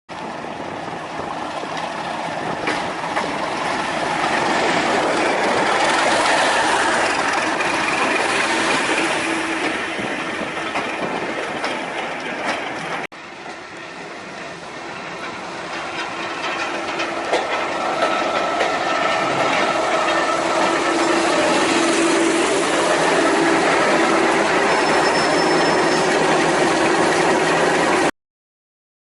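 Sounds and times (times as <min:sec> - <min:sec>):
train rolling past: 0:00.1 - 0:28.1.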